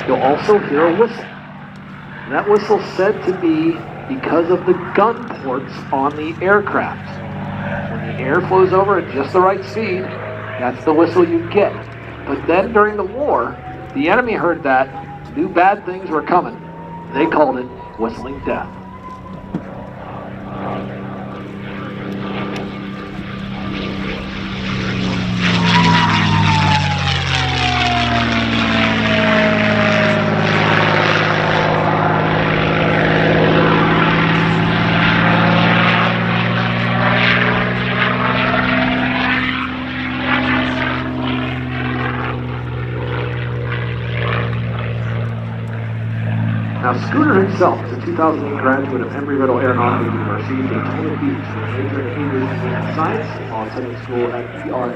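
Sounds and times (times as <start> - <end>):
propeller plane engine drone: 0.0 - 54.9
high whistle sliding down: 25.5 - 30.3.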